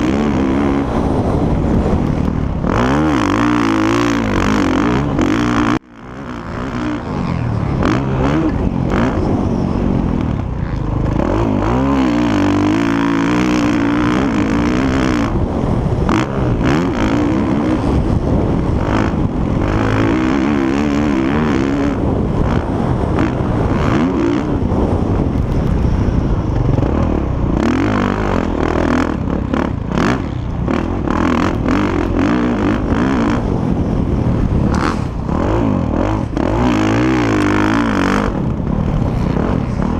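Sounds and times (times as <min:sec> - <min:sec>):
motocross engines revving: 0:00.0 - 0:39.9.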